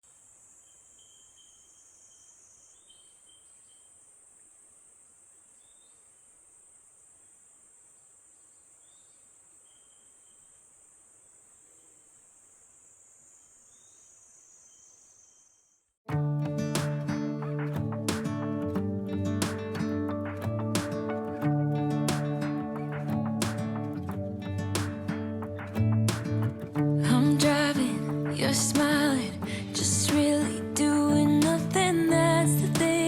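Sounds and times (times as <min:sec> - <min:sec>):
cicada buzzing: 0:00.2 - 0:15.8.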